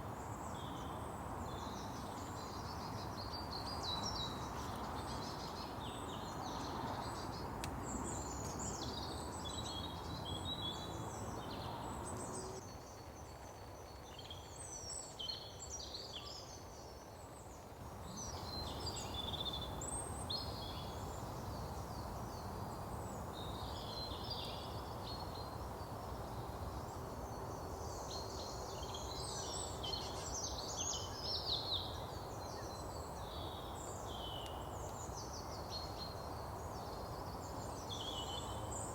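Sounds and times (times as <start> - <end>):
songbirds singing and chirping: 0.0 - 38.9
steady background hiss: 0.0 - 38.9.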